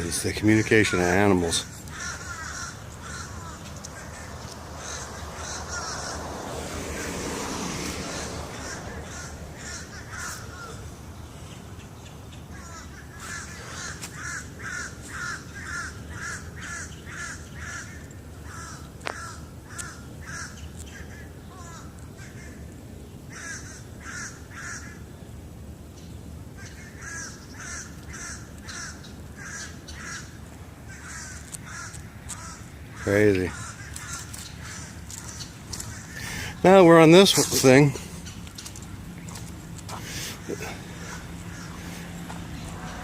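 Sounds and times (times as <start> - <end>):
crows cawing: 0.6 - 11.2, 12.5 - 22.6, 23.3 - 25.1, 26.6 - 43.0
steady noise: 28.4 - 43.0.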